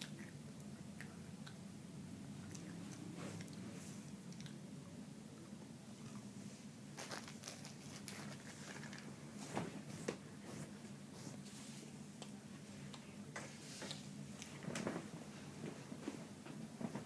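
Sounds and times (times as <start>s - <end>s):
low steady hum: 0.0s - 17.0s
cracker crackles: 7.0s - 9.1s
plastic packaging crinkling: 7.0s - 9.1s.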